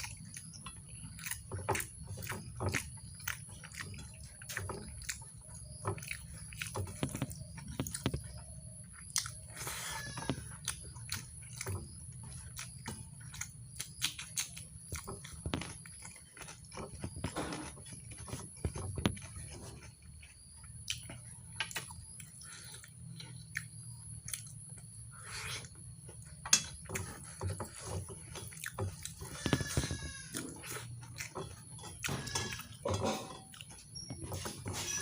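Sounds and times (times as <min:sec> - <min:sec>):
wet chewing and lip smacks: 0:00.0 - 0:19.4, 0:20.0 - 0:32.7.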